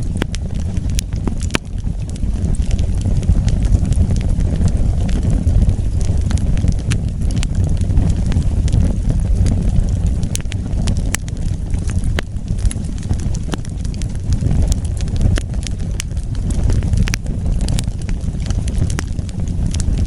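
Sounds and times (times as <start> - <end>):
logs crackling and popping: 0.0 - 20.0
wood fire burning: 0.0 - 20.0.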